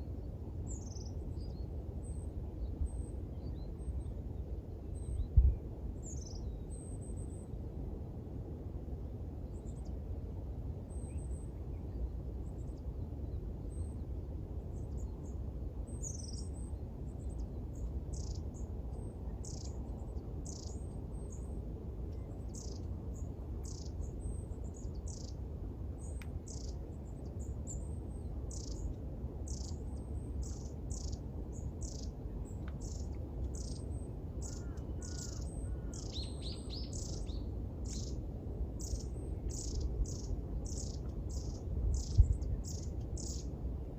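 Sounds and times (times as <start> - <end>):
birds chirping: 17.8 - 18.4, 20.4 - 20.8, 23.6 - 25.4, 26.0 - 27.4, 29.5 - 38.2, 38.8 - 43.5.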